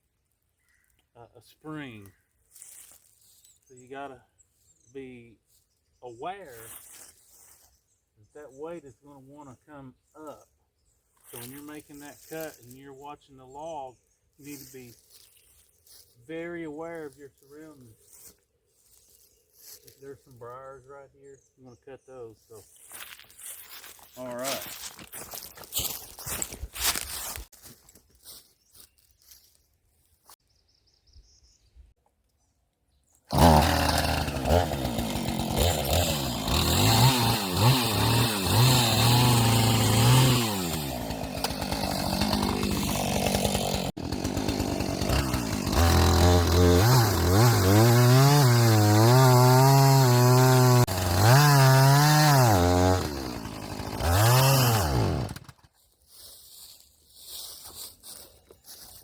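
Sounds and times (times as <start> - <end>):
chainsaw cutting wood: 11.3 - 12.9, 33.3 - 55.8.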